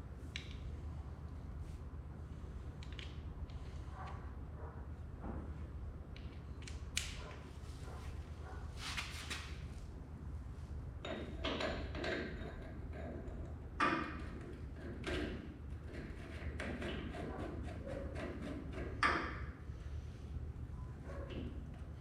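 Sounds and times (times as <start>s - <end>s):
steady low hum: 0.0s - 22.0s
tools and parts clicking and scraping: 11.0s - 19.4s.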